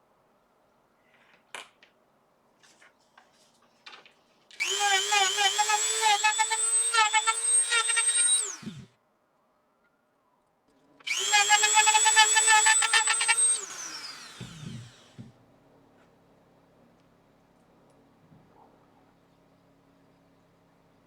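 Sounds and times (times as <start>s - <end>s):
rotary tool grinding with high whine: 4.6s - 8.9s, 11.1s - 15.2s.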